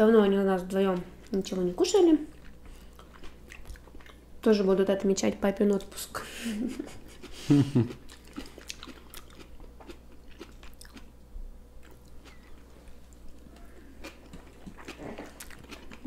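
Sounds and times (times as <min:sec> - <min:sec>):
chewing and biting food: 0:02.2 - 0:04.2, 0:06.8 - 0:11.2, 0:11.8 - 0:16.0.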